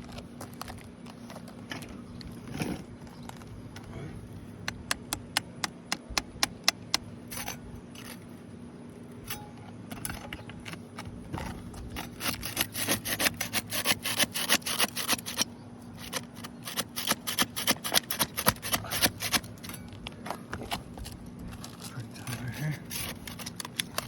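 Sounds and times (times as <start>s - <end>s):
tool scraping under shingles: 0.0s - 3.8s, 10.1s - 24.0s.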